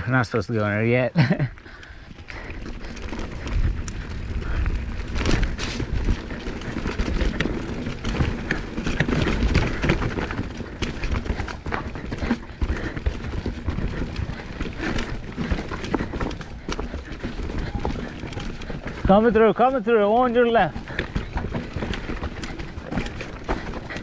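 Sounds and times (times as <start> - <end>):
mountain bike clattering over rocks: 2.1 - 24.0
wind rumble on microphone: 2.3 - 11.7.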